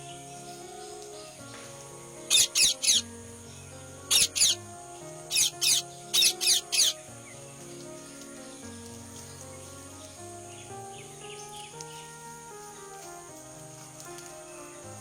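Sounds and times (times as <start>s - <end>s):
background music with sustained notes: 0.0s - 15.0s
parrot calling: 2.2s - 3.1s, 4.1s - 7.1s.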